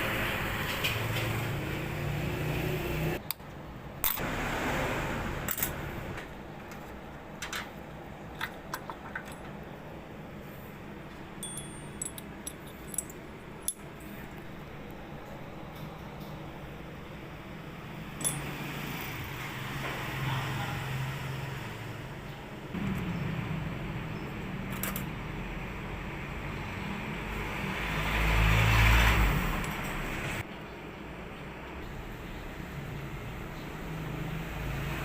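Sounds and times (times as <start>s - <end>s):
small metal parts clinking: 8.4s - 9.6s, 11.4s - 14.4s, 18.2s - 18.5s, 24.7s - 25.1s.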